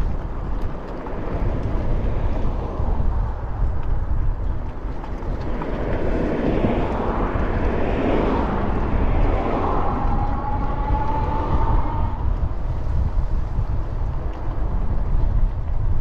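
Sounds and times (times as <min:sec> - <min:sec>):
wind buffeting microphone: 0:00.0 - 0:16.0
passing engine: 0:05.4 - 0:12.7.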